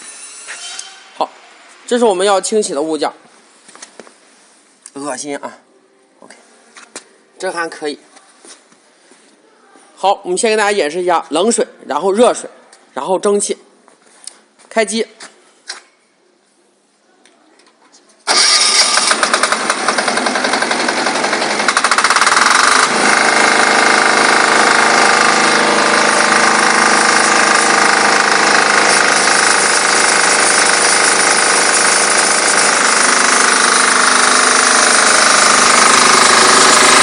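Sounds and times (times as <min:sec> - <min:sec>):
diesel engine starting and knocking: 0:18.3 - 0:37.0.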